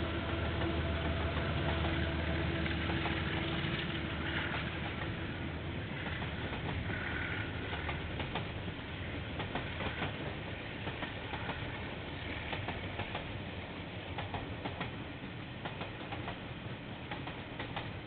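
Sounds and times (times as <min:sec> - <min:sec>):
train rolling past: 0:00.0 - 0:18.0
wheels clicking over rail joints: 0:05.9 - 0:08.7, 0:09.3 - 0:13.4, 0:17.1 - 0:18.0.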